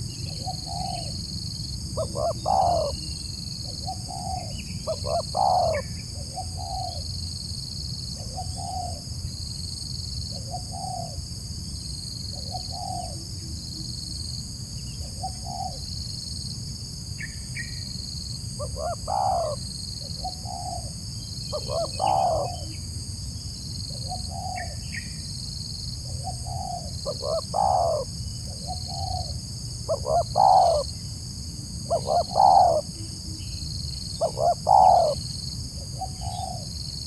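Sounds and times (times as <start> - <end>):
dove cooing: 0.0 - 1.2, 1.9 - 7.0, 18.6 - 19.6, 20.2 - 20.9, 21.5 - 22.8, 26.0 - 30.9, 31.8 - 33.5, 34.2 - 35.2, 35.8 - 36.7.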